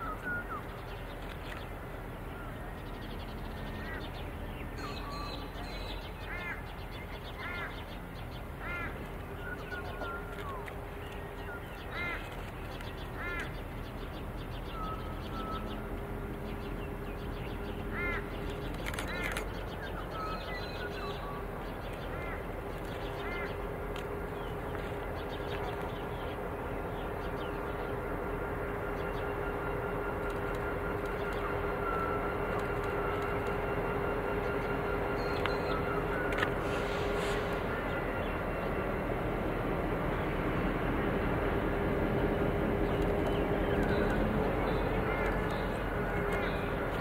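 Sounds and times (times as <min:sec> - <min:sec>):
diesel freight train drone: 0:00.0 - 0:47.0
birds cawing: 0:08.6 - 0:09.0, 0:11.9 - 0:12.3, 0:17.9 - 0:18.4.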